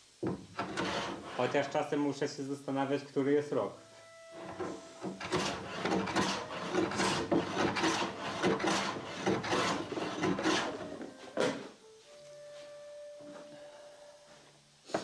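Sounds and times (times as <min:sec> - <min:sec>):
pad rasping on wood: 0:00.3 - 0:01.6, 0:04.4 - 0:11.6.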